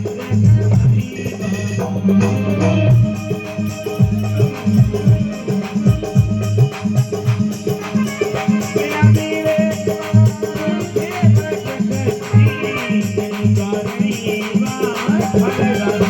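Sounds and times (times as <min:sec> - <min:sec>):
low drum beat: 0:00.0 - 0:16.0
rattling hand percussion: 0:00.0 - 0:16.0
wavering melody: 0:00.8 - 0:10.8.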